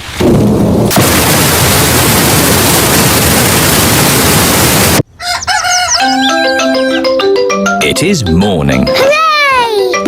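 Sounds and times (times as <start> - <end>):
heavy rain falling: 0.9 - 5.0.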